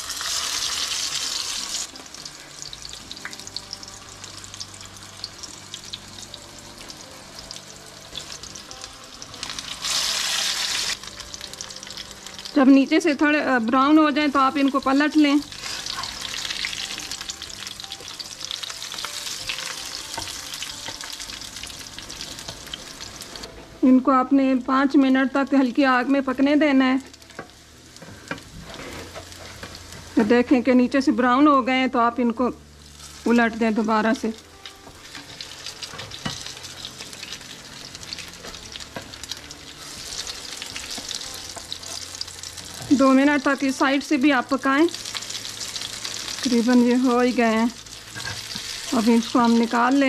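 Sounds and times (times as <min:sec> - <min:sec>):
food sizzling in frying pan oil: 0:00.0 - 0:23.5, 0:24.8 - 0:31.4, 0:32.4 - 0:50.0
spatula scraping a pan: 0:15.6 - 0:16.7, 0:28.1 - 0:29.8.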